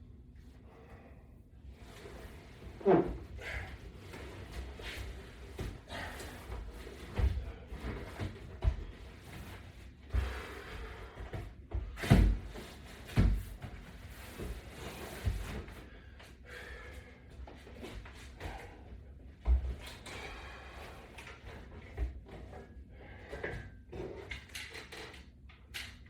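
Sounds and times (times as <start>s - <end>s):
exercise gear thumping and knocking: 4.5s - 14.6s.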